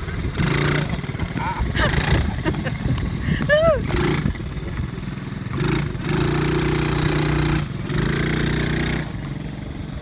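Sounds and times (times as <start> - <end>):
atv engine under throttle: 0.0 - 10.0.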